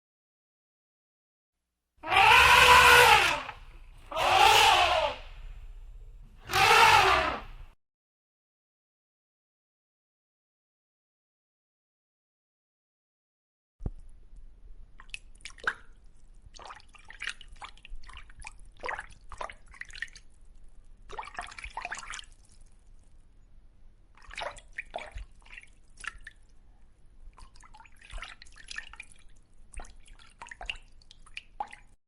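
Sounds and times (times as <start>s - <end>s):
water splashes and drips: 15.0s - 23.0s, 24.1s - 26.6s, 27.3s - 32.0s.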